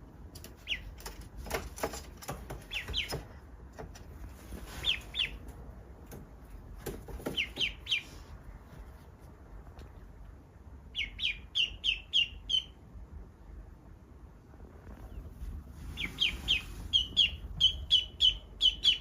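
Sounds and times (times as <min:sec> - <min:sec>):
duckling peeping: 0:00.4 - 0:01.3, 0:02.3 - 0:05.6, 0:06.9 - 0:08.4, 0:10.9 - 0:12.9, 0:14.9 - 0:19.0.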